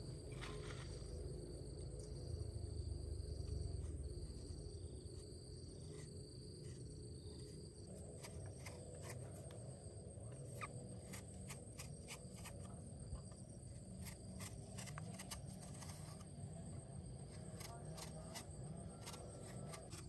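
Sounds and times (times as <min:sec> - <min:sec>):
high-pitched insect trill: 0:10.3 - 0:20.0.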